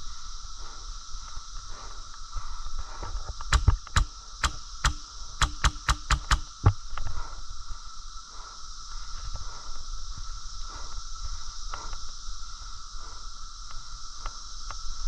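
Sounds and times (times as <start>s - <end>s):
airsoft gun shots: 3.5s - 6.8s.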